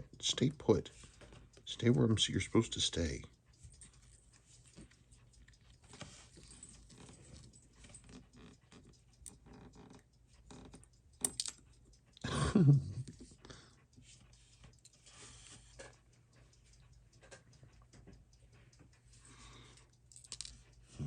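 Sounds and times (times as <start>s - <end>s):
small tools clicking and rustling: 5.8s - 11.7s, 20.1s - 20.8s.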